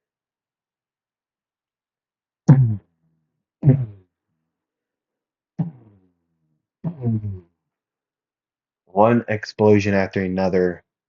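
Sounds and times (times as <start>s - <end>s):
man making mouthed boom noises: 2.5s - 2.8s, 3.6s - 4.0s, 5.6s - 5.9s, 6.9s - 7.4s.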